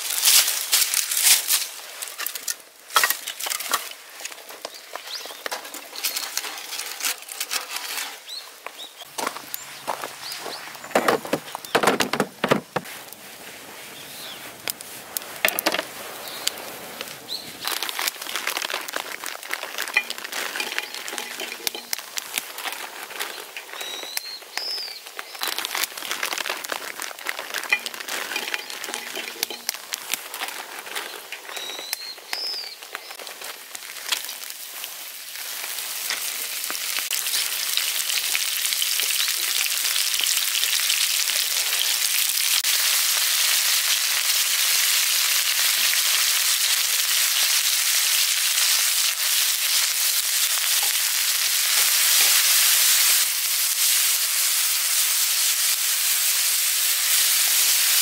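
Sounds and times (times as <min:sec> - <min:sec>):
steady hiss: 0:09.1 - 0:18.0
crackling and ticking: 0:14.3 - 0:40.6.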